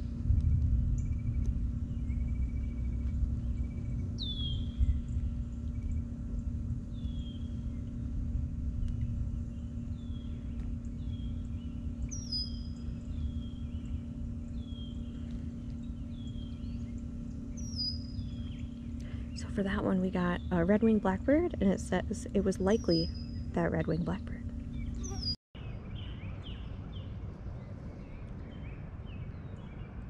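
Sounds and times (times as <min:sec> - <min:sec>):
wind rumble: 0:00.0 - 0:30.0
blackbird whistling calls: 0:04.2 - 0:05.2, 0:10.0 - 0:14.0, 0:17.6 - 0:18.6, 0:24.7 - 0:25.4.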